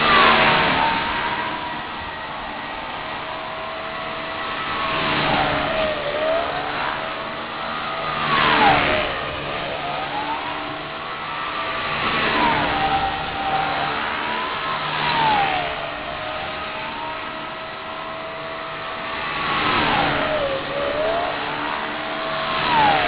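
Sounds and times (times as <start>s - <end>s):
rc helicopter motor and rotor whine: 0.0s - 23.0s
whoosh of rotor noise: 11.4s - 17.1s.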